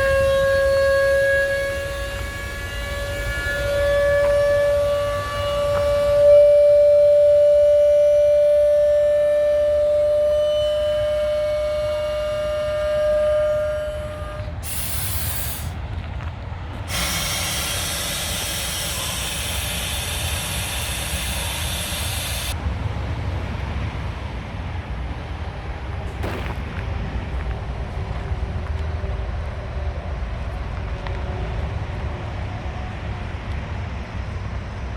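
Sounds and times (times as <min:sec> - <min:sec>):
horn-like tone: 0:00.0 - 0:15.7, 0:16.9 - 0:22.6
compressed air hissing: 0:01.6 - 0:15.8, 0:16.8 - 0:22.6
truck engine idling: 0:01.6 - 0:31.0.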